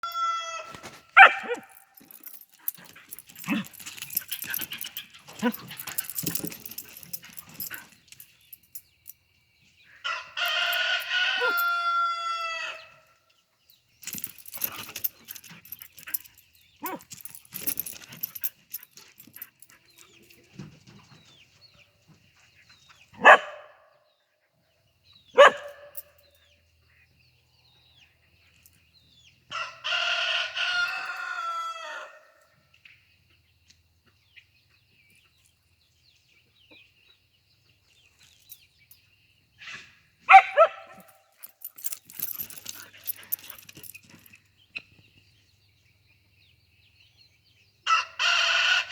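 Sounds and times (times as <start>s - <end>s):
rooster crowing: 0.0s - 0.8s, 10.0s - 12.9s, 29.5s - 32.3s, 47.9s - 48.9s
scuffling: 0.6s - 8.2s
husky barking: 1.1s - 8.0s, 14.6s - 17.2s, 23.2s - 23.9s, 25.3s - 26.1s, 40.3s - 41.1s.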